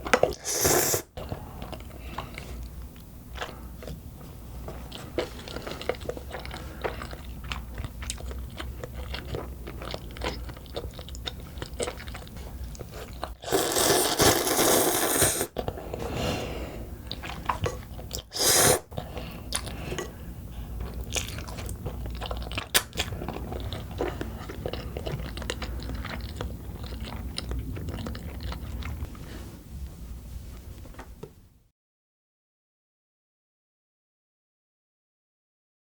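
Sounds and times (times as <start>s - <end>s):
chewing and wet mouth clicks: 4.9s - 13.4s, 19.5s - 20.1s, 20.8s - 29.1s.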